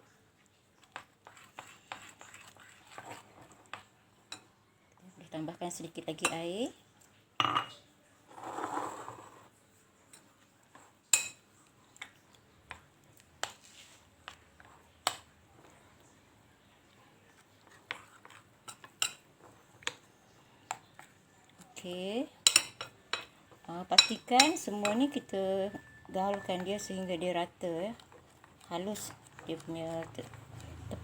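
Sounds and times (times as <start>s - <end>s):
utensil stirring batter in bowl: 0.4s - 4.6s, 8.3s - 16.2s, 16.8s - 31.0s.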